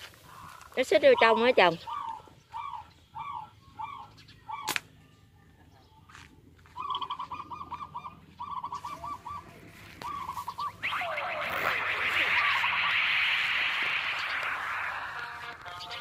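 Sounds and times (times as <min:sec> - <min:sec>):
bird squawking: 0:00.2 - 0:04.8, 0:06.8 - 0:16.0
rush of noise: 0:10.0 - 0:16.0.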